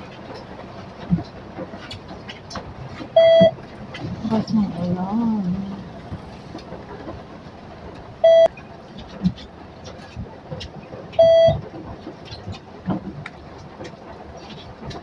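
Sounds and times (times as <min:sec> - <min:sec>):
vehicle noise: 0:00.0 - 0:15.0
electronic beeps: 0:03.2 - 0:03.5, 0:08.2 - 0:08.5, 0:11.2 - 0:11.6.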